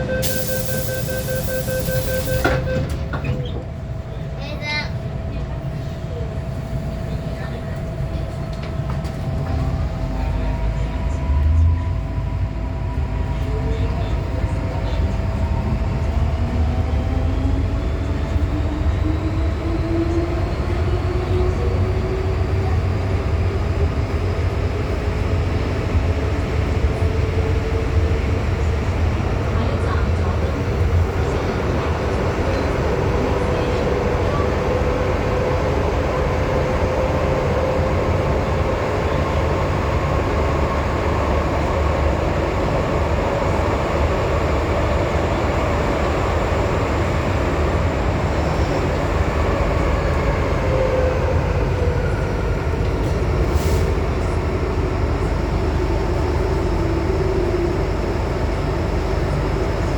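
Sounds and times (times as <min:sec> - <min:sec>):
train wheels rumbling on rails: 0:01.1 - 0:59.9.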